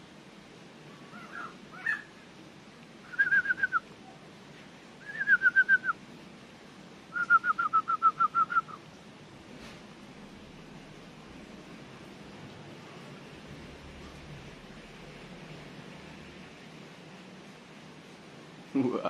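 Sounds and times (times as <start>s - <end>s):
bird calling: 1.0s - 2.2s, 7.1s - 8.8s.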